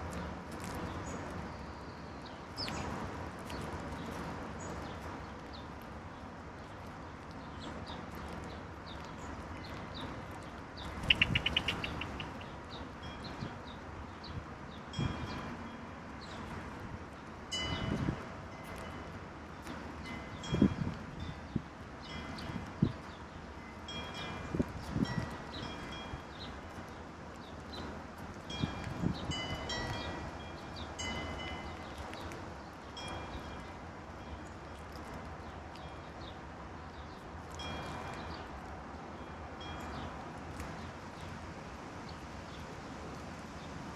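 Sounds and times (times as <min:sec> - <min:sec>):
songbirds chirping: 0:00.0 - 0:43.9
birds chirping: 0:07.4 - 0:15.4
wind gusts on microphone: 0:09.2 - 0:26.9, 0:27.7 - 0:34.5.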